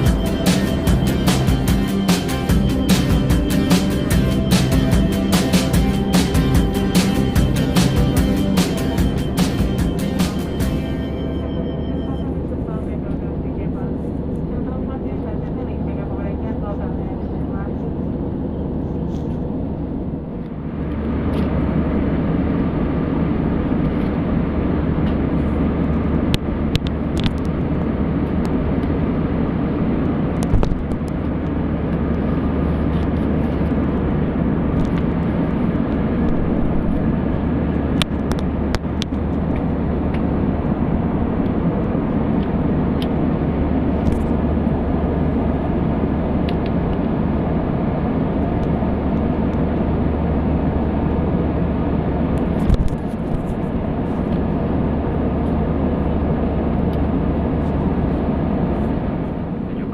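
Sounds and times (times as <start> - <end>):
airliner cabin engine noise: 0.0 - 59.9.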